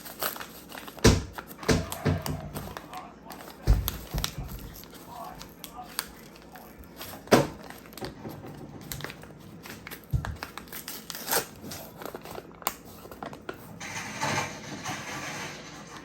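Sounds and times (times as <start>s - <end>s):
kitchen items clicking and knocking: 0.0s - 4.9s, 13.0s - 16.0s.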